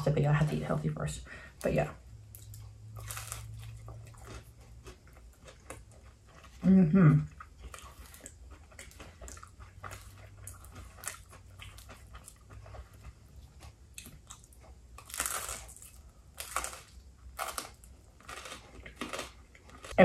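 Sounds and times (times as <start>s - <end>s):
person chewing crunchy crust: 2.2s - 20.0s.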